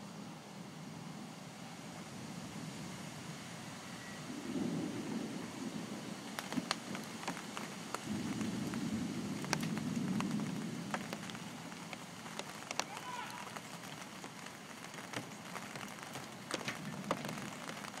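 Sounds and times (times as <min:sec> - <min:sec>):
storm rain: 0:00.0 - 0:18.0
wind gusting: 0:01.0 - 0:18.0
drops ticking on hard surface: 0:06.3 - 0:08.8, 0:09.4 - 0:18.0.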